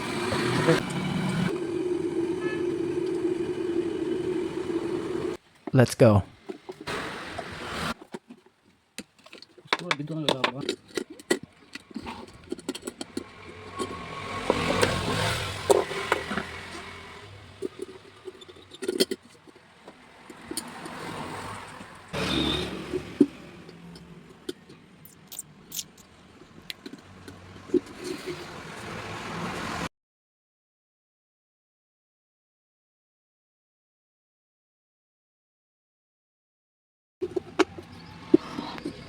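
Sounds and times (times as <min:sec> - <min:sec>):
rubbing and clatter: 0:06.4 - 0:21.2
clicks and knocks of handled parts: 0:08.0 - 0:15.0.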